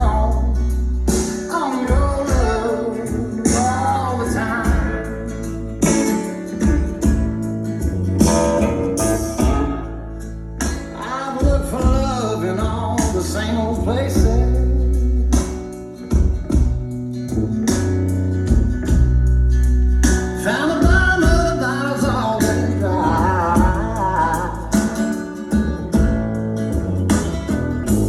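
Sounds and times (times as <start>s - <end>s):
song over car audio system: 0.0s - 15.8s, 19.6s - 28.0s.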